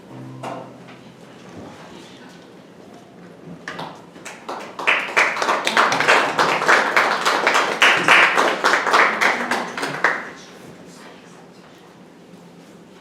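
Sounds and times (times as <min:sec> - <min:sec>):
audience applauding: 0:03.7 - 0:10.5.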